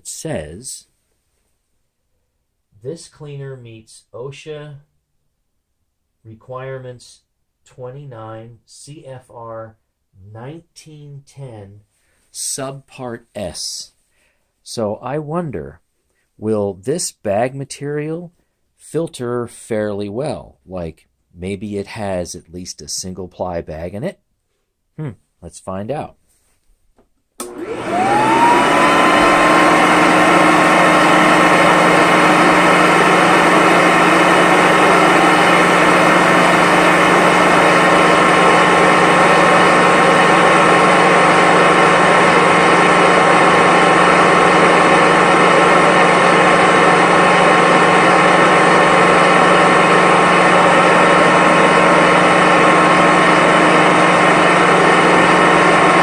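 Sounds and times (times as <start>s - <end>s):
vacuum cleaner motor whine: 27.4s - 56.0s.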